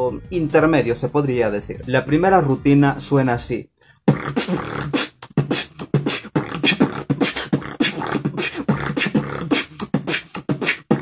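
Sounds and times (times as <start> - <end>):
beatboxing drum and bass beat: 4.0 - 11.0.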